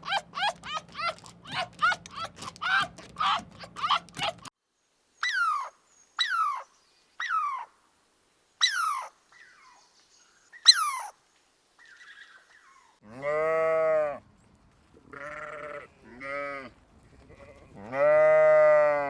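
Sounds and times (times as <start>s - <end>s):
high falling animal calls: 5.2s - 7.8s, 8.6s - 9.9s, 10.6s - 11.2s
short chirping animal calls: 5.2s - 7.8s, 8.6s - 9.9s, 10.5s - 11.2s.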